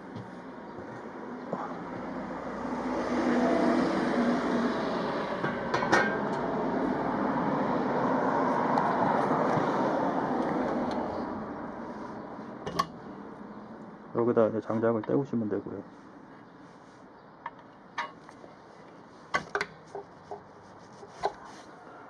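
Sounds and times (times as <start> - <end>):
vehicle passing: 1.2 - 14.3.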